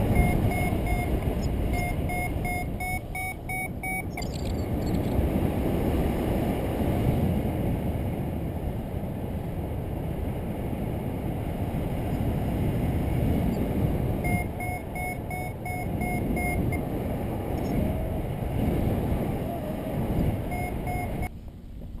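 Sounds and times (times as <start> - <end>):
variometer beeping short pips: 0.0 - 5.2, 14.2 - 16.9, 20.5 - 21.3
wind buffeting microphone: 0.0 - 22.0.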